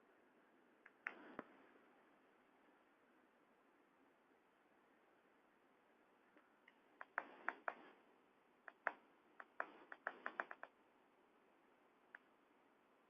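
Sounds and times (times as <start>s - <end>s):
faint sharp clicks and taps: 0.8s - 1.6s, 6.2s - 8.0s, 8.6s - 10.8s, 12.1s - 12.4s.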